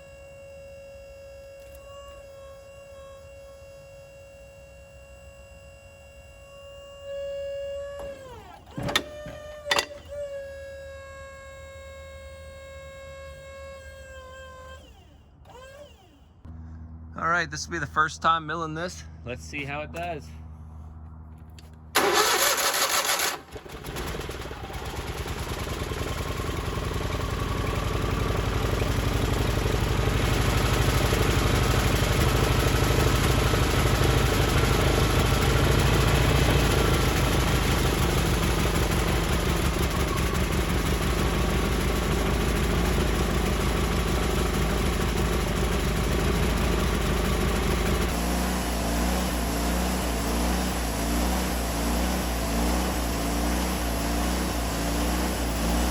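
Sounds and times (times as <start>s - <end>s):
band sawmill cutting log: 7.2s - 16.2s, 22.0s - 55.9s.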